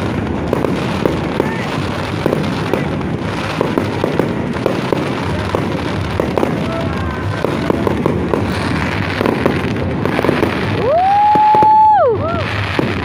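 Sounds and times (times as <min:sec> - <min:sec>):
firework bangs and crackles: 0:00.0 - 0:13.0.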